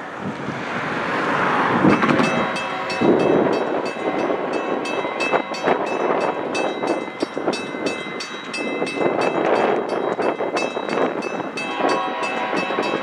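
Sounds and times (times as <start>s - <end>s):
diesel locomotive engine: 0.0s - 13.0s.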